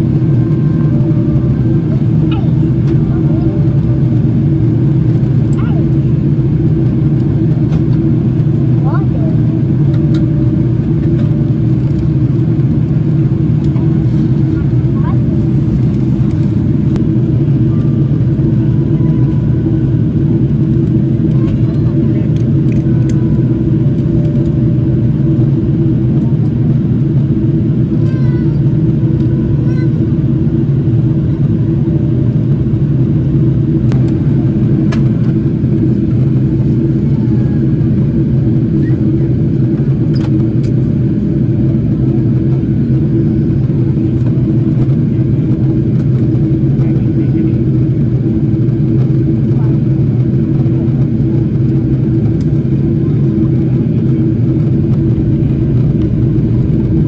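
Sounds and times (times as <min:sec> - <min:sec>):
faint voices: 0:00.0 - 0:07.2, 0:08.1 - 0:23.9, 0:34.0 - 0:40.1, 0:40.8 - 0:57.0
airliner cabin engine drone: 0:00.0 - 0:57.0.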